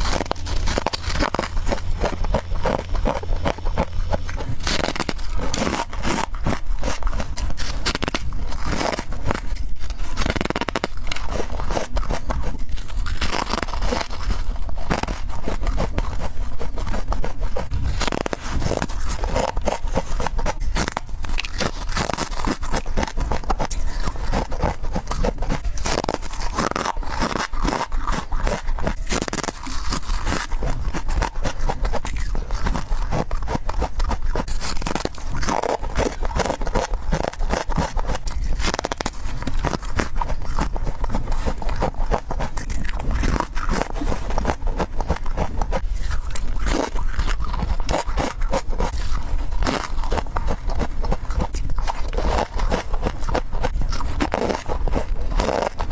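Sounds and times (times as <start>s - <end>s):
frost being bitten and chewed: 0.0s - 55.9s.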